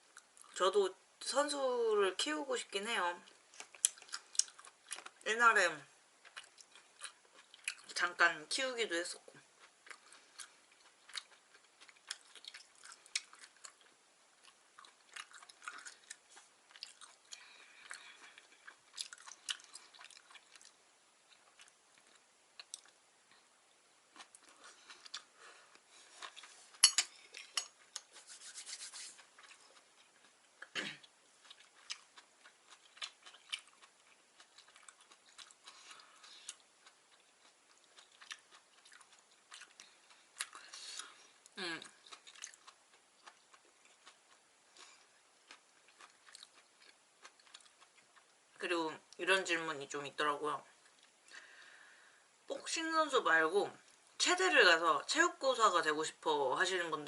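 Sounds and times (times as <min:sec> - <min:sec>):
wet chewing mouth sounds: 0:03.5 - 0:05.2, 0:09.6 - 0:23.0, 0:24.1 - 0:48.4.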